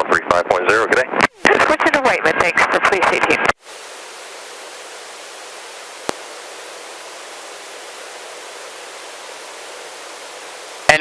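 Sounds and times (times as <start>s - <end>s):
intercom radio hiss: 1.5s - 11.0s.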